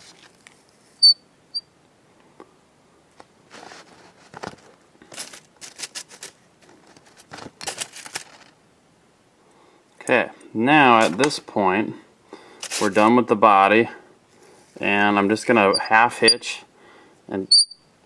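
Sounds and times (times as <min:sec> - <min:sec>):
scratchy rustles of hair and thread: 0:03.5 - 0:08.6.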